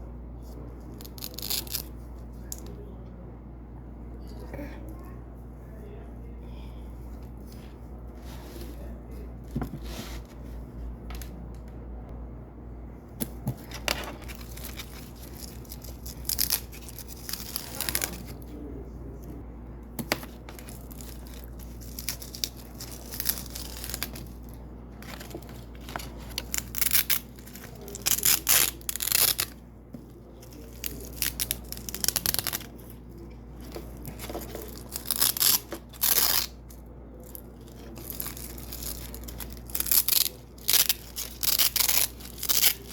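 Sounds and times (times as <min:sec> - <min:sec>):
velcro strips ripping apart: 0:01.0 - 0:01.9, 0:14.3 - 0:18.3, 0:25.0 - 0:29.6, 0:30.6 - 0:32.7, 0:34.2 - 0:36.6, 0:37.6 - 0:42.9.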